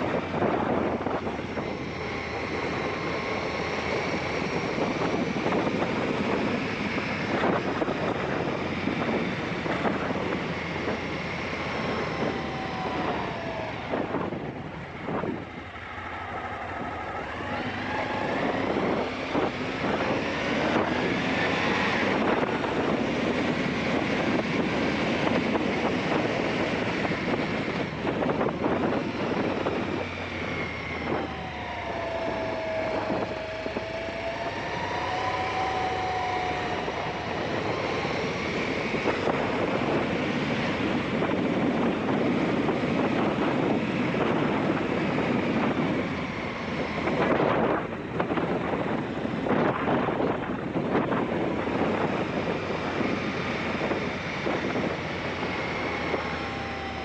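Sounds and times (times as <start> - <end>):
wind rush on microphone: 0.0 - 57.0.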